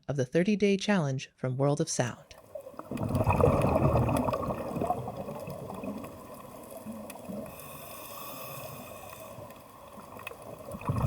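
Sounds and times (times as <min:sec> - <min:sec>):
water washing softly: 0:02.4 - 0:11.0.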